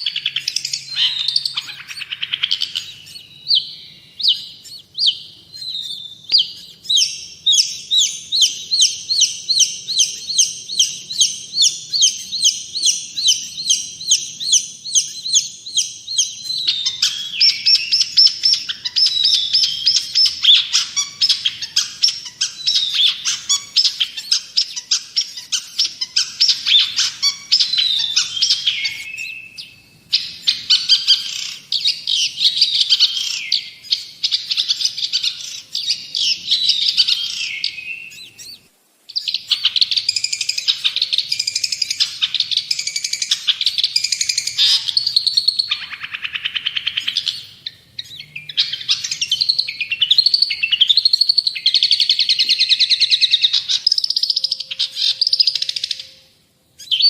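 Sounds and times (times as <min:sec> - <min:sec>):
bird chattering song with trills: 0:00.0 - 0:57.0.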